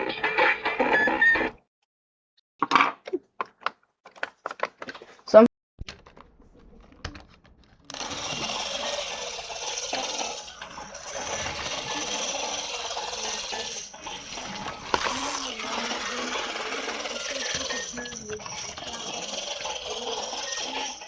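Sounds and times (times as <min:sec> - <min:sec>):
small motor and gears whirring: 0:07.9 - 0:21.0.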